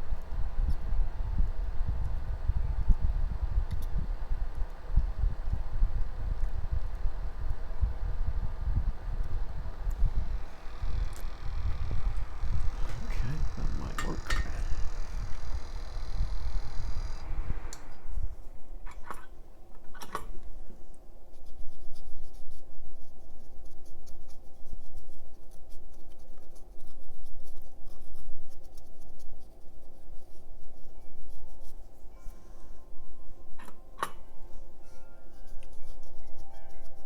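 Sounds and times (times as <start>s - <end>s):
low hum: 0.0s - 21.0s
sharp clicks: 9.2s - 18.0s
hand tools scratching and tapping: 10.6s - 17.2s.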